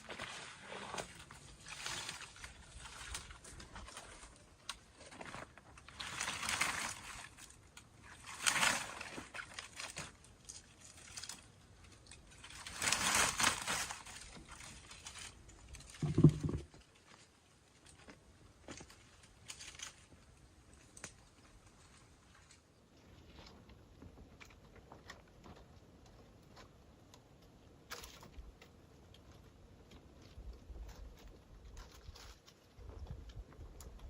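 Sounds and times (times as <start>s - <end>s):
branches and leaf litter rustling: 0.0s - 23.5s.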